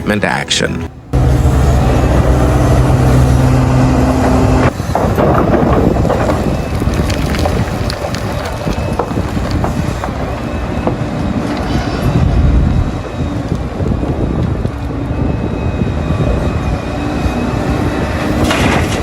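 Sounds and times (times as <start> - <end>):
diesel machinery engine drone: 0.0 - 19.0
rough machine noise: 0.9 - 12.0.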